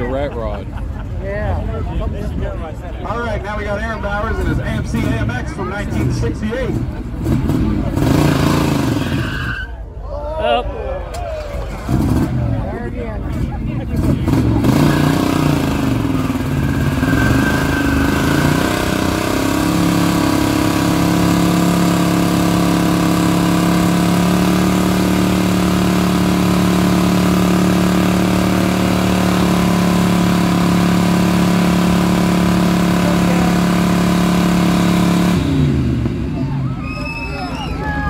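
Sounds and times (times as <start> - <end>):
car engine at high revs: 4.4 - 9.3, 11.7 - 36.7.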